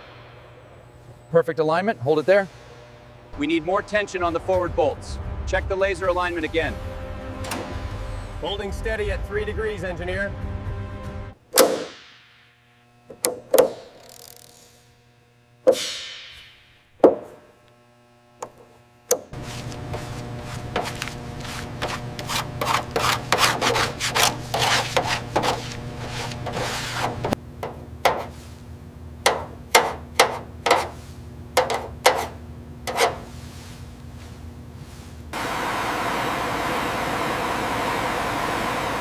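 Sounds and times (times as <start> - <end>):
low hum: 0.0 - 11.4
rasp scraping strokes: 19.2 - 27.4, 28.0 - 28.6, 29.3 - 35.2.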